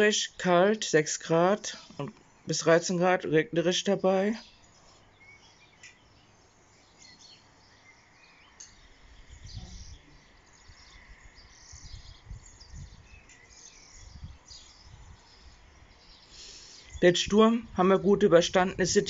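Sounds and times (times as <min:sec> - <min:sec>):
birds chirping faintly: 0:00.0 - 0:19.0
soft outdoor hiss: 0:00.0 - 0:19.0
low rumbles on microphone: 0:09.2 - 0:13.2.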